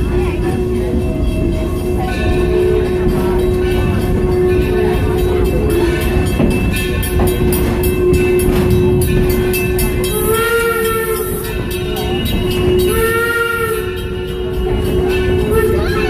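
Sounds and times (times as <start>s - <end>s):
train wheels clattering on rails: 0.0s - 16.0s
steam locomotive whistle: 10.0s - 11.9s, 12.5s - 16.0s.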